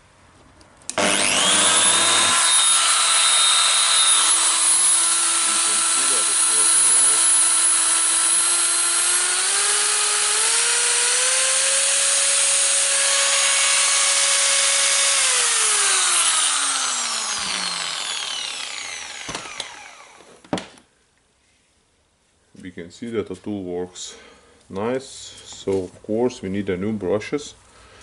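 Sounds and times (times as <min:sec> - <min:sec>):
angle grinder motor whine: 0:00.9 - 0:20.4.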